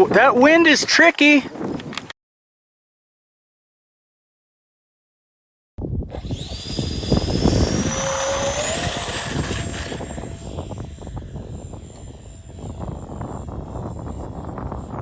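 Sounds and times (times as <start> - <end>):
wind buffeting microphone: 0.0 - 2.1, 5.8 - 15.0
model aircraft motor whine: 6.1 - 15.0.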